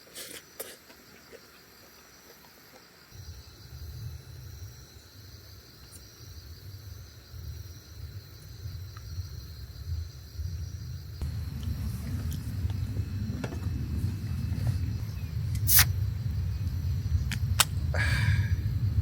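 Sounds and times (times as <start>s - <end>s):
crickets chirping: 0.0s - 19.0s
low uneven rumble: 3.2s - 19.0s.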